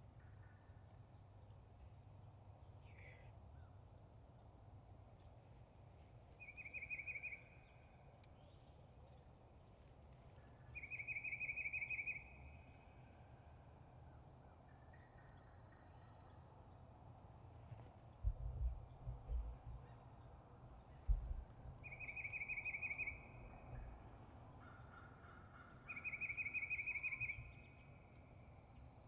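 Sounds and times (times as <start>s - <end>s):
trilled bird calls: 20.9s - 24.0s, 24.6s - 27.8s.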